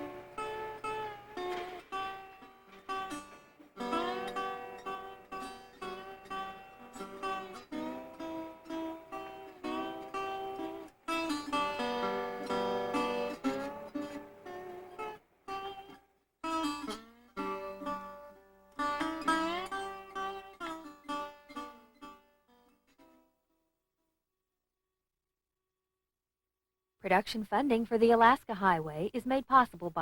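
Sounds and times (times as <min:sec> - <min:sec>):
acoustic guitar melody: 0:00.0 - 0:23.4.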